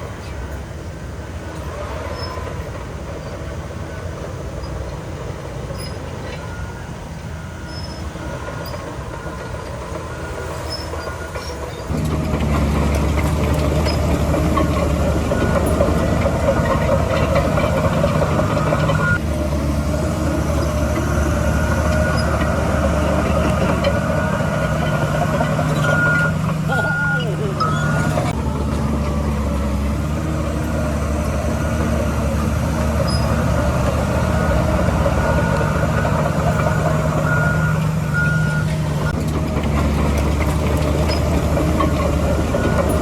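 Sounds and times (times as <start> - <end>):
diesel machinery engine drone: 0.0 - 43.0
metallic clanking: 11.9 - 43.0.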